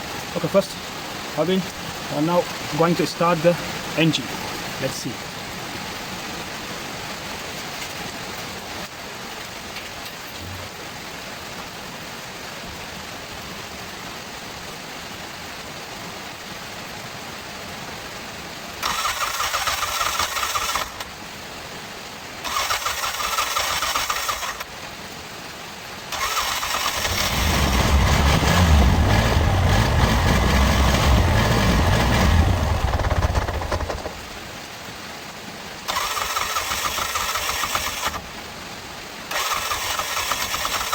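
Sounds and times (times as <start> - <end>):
starter motor cranking engine: 18.8 - 21.1, 22.4 - 24.7, 26.1 - 34.2, 35.9 - 38.2, 39.3 - 40.9
engine running: 26.1 - 34.4.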